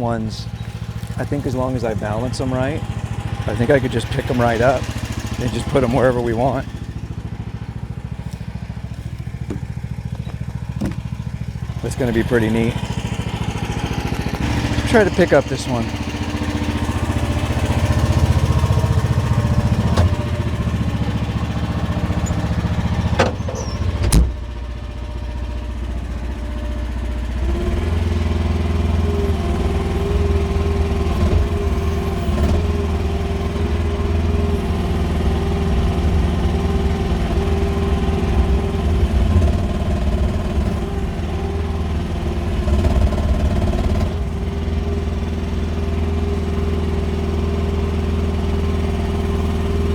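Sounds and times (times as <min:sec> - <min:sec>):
excavator engine running: 0:00.0 - 0:49.9
sharp knocks: 0:09.4 - 0:11.2.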